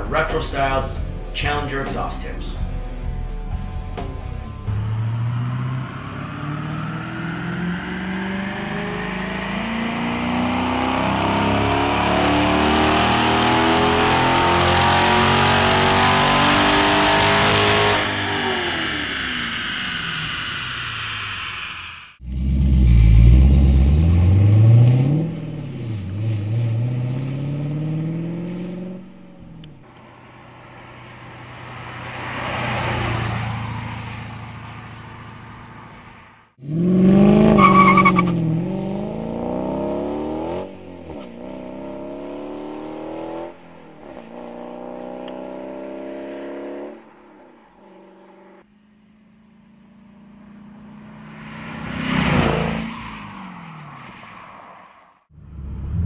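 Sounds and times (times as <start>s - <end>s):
car driving past: 0.0s - 48.7s, 49.8s - 56.0s
car engine accelerating: 0.0s - 54.4s, 55.2s - 56.0s.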